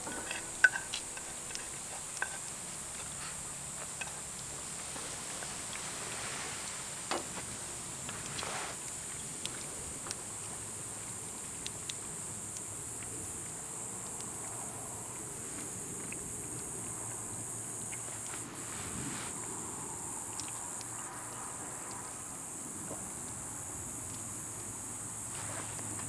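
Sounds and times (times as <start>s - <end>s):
night insects trilling: 0.0s - 26.0s
faint ticks: 8.0s - 18.5s, 20.2s - 22.3s.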